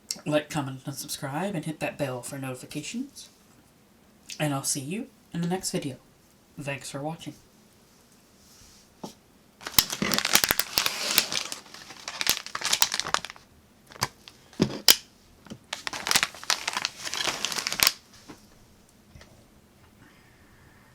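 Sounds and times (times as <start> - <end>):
snack packaging crinkling: 9.6 - 18.1.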